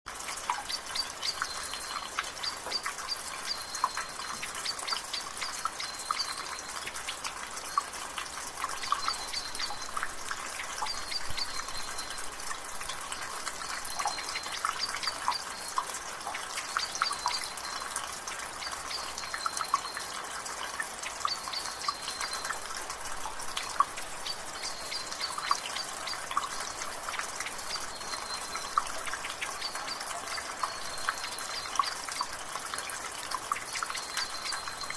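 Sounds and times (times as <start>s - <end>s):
water dripping from gutter: 0.1s - 34.9s
bird chirping: 0.4s - 7.9s, 8.7s - 12.3s, 12.9s - 20.0s, 23.2s - 32.4s, 33.6s - 34.9s.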